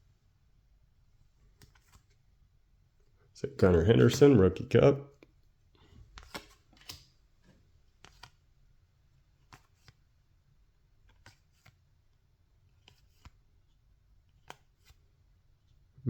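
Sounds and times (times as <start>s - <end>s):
trading cards being flipped: 1.6s - 2.2s, 6.2s - 7.2s, 8.0s - 8.4s, 9.4s - 10.0s, 11.0s - 11.8s, 12.8s - 13.4s.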